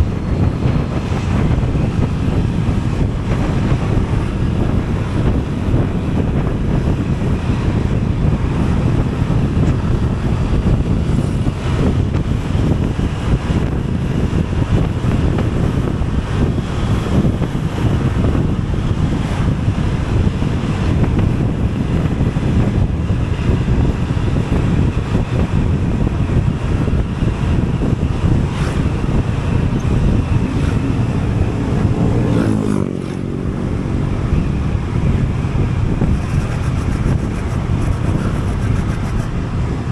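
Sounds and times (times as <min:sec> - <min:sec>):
vehicle road and engine noise: 0:00.0 - 0:39.9
wind buffeting microphone: 0:00.0 - 0:39.9.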